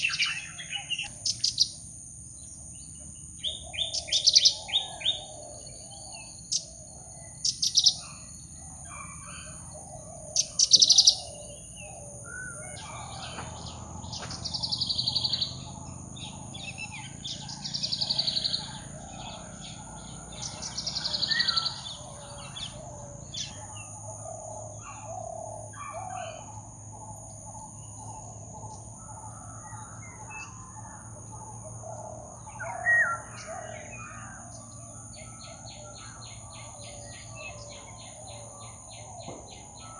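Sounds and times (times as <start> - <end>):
bird trilling: 0.0 - 1.8, 3.4 - 39.4
high insect drone: 0.0 - 39.9
jungle birds calling: 0.0 - 39.9
soft bird chatter: 0.0 - 39.9.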